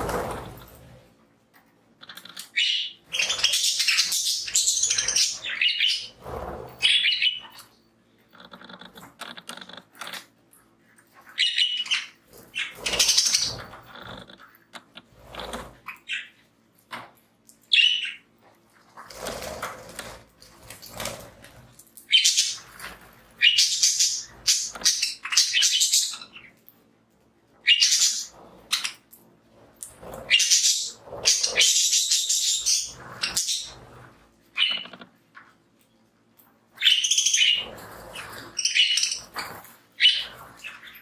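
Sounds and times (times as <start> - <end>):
budgies chirping: 2.0 - 7.7, 11.1 - 14.4, 15.5 - 16.4, 17.7 - 18.3, 22.1 - 26.6, 27.6 - 29.0, 29.9 - 35.0, 36.8 - 41.0.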